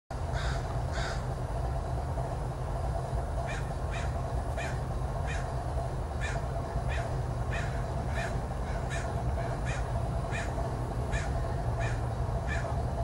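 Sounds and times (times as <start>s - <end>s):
steady low rumble: 0.1s - 13.0s
bird calling: 0.3s - 1.3s, 3.4s - 5.6s, 6.2s - 12.8s.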